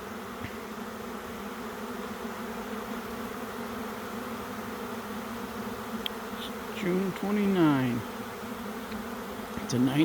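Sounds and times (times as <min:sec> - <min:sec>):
bee swarm buzzing: 0:00.0 - 0:10.0.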